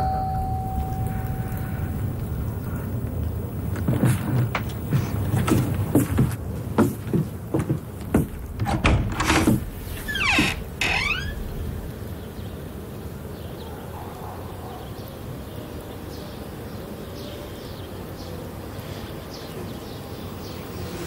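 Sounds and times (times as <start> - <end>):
low background hum: 0.0 - 12.9
door creaking: 8.1 - 11.8.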